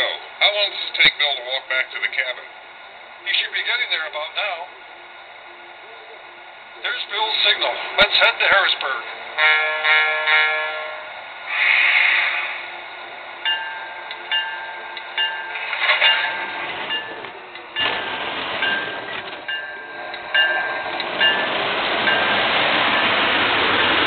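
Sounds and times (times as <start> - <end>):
train running noise: 0.0 - 24.0
locomotive bell ringing: 12.8 - 24.0.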